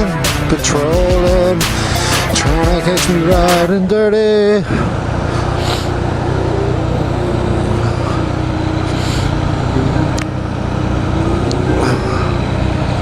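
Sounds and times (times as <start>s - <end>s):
motorcycle engine running: 4.9s - 13.0s.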